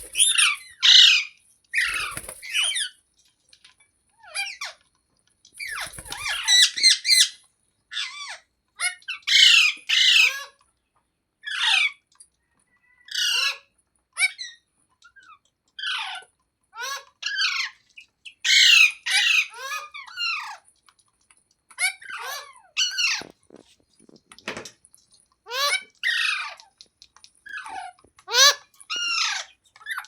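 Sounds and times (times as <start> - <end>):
parrot squawking: 0.0 - 2.9, 5.6 - 10.5, 18.4 - 20.6, 25.5 - 26.6, 27.5 - 30.0.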